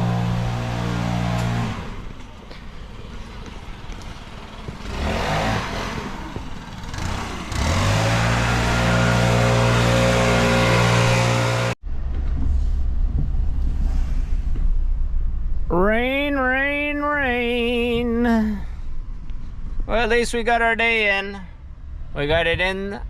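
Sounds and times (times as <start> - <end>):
engine running: 0.0 - 16.1
low engine hum: 0.0 - 22.9.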